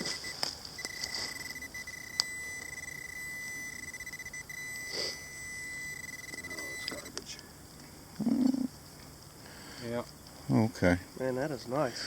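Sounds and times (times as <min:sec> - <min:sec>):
pinpointer high tone: 0:00.0 - 0:07.2.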